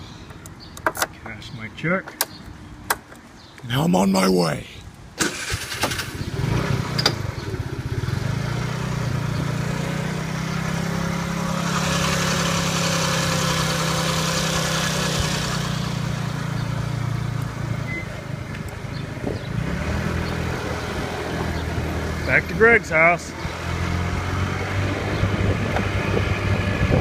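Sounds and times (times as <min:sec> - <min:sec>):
motorbike engine pulling away: 0:05.2 - 0:16.8.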